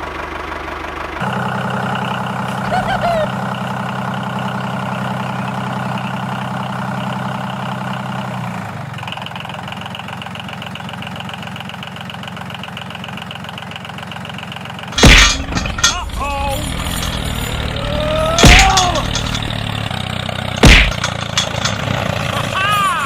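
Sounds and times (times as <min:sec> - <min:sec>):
loud sharp knock: 0:15.0 - 0:15.7, 0:18.4 - 0:19.6, 0:20.6 - 0:21.2.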